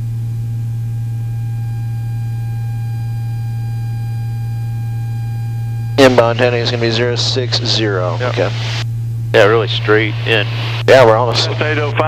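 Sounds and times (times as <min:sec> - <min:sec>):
electrical whine: 0:00.0 - 0:12.0
aircraft engines droning: 0:04.4 - 0:12.0.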